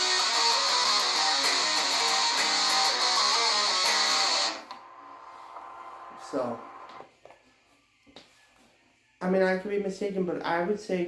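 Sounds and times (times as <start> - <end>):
distorted electric guitar riff: 0.0 - 4.7.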